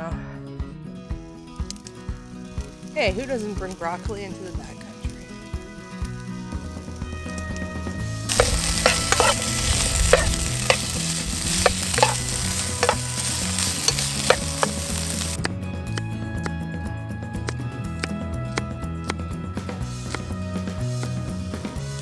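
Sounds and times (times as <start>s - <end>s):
food sizzling in a frying pan: 8.3s - 15.4s
utensil stirring and scraping pan: 8.3s - 15.4s.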